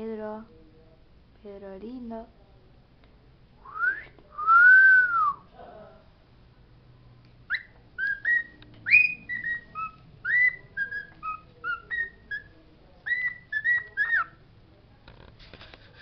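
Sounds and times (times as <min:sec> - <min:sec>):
bird whistling: 0:07.5 - 0:12.5, 0:13.1 - 0:14.3.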